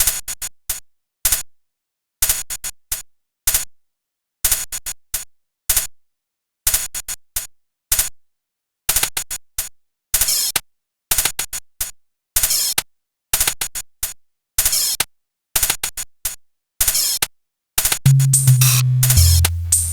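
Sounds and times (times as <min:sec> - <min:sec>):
electronic music sampled hits: 0:18.1 - 0:19.9.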